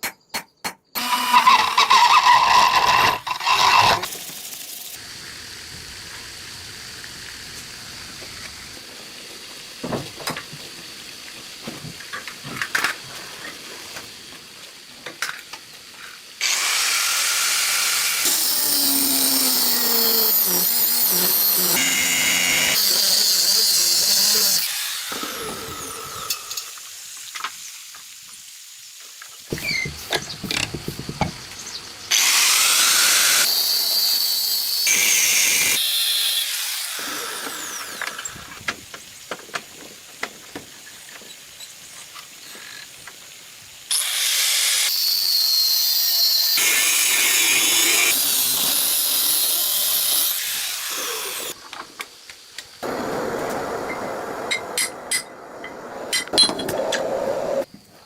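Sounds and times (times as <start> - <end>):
power tool hissing: 15.9 - 27.8, 29.5 - 39.3, 40.7 - 54.9.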